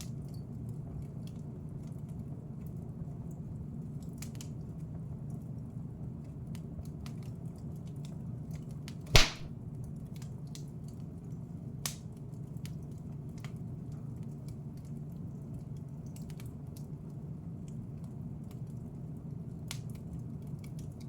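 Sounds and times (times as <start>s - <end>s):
sharp pop of fire: 9.2s - 9.5s.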